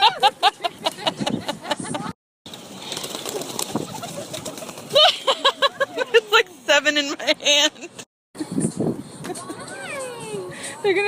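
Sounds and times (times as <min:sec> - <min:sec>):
crowd of birds calling: 0:00.0 - 0:06.3.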